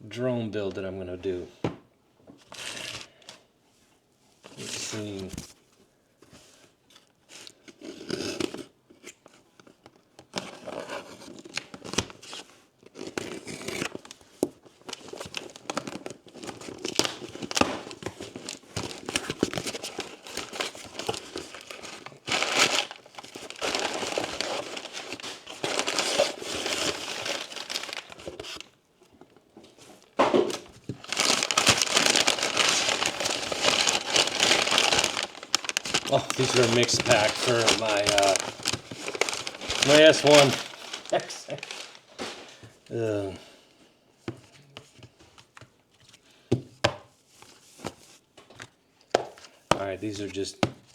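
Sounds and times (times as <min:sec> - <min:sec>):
packaging crinkling and tearing: 0:07.3 - 0:43.1.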